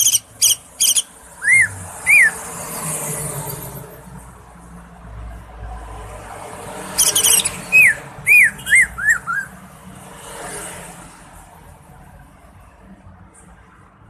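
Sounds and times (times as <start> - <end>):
bird twittering: 0.0 - 2.4, 7.0 - 9.6
bird whistling notes: 0.0 - 2.5, 7.0 - 9.6.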